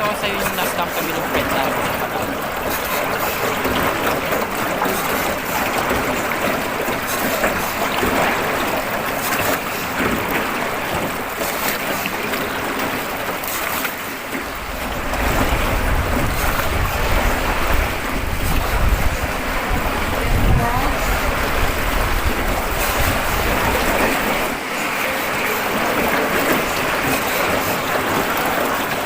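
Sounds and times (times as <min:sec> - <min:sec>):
water rushing past boat: 0:00.0 - 0:29.0
wind buffeting microphone: 0:14.4 - 0:24.6.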